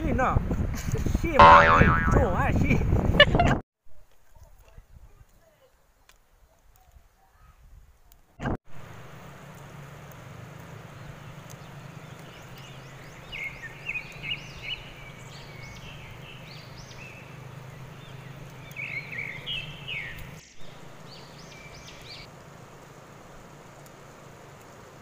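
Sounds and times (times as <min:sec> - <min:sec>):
birds chirping: 0:01.4 - 0:02.3, 0:10.9 - 0:22.3.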